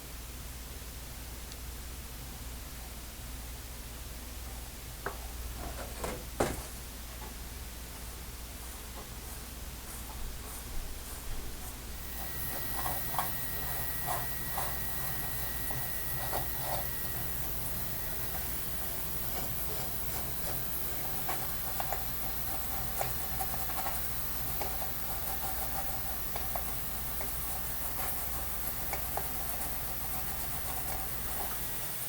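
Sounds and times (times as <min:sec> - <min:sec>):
electrical hum and hiss: 0:00.0 - 0:32.0
metal part being scrubbed: 0:09.3 - 0:31.8.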